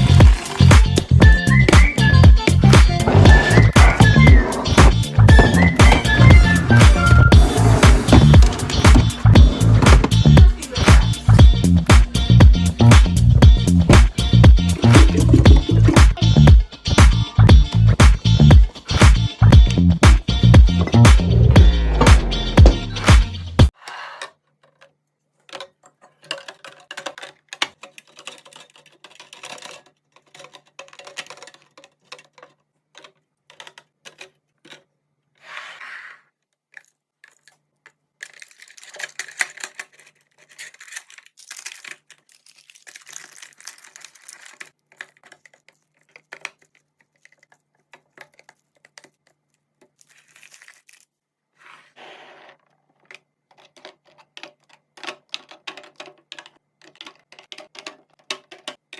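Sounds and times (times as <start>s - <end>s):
wrappers crinkling and tearing: 0.0s - 0.7s, 36.7s - 51.2s
plastic containers clicking: 0.0s - 12.2s, 13.9s - 16.2s, 24.3s - 34.9s, 36.7s - 50.1s, 52.9s - 58.9s.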